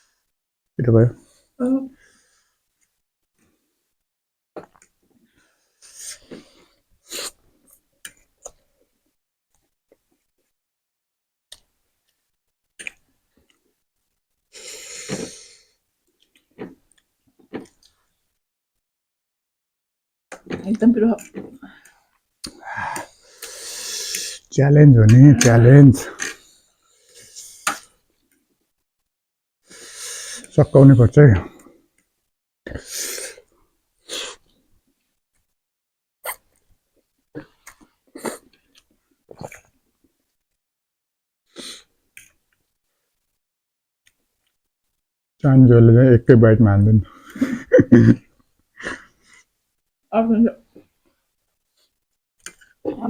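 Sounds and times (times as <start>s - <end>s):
wheezy mouth breath: 14.5s - 15.8s, 22.5s - 24.5s, 29.7s - 30.5s, 32.7s - 34.5s
sharp breaths: 21.8s - 24.5s.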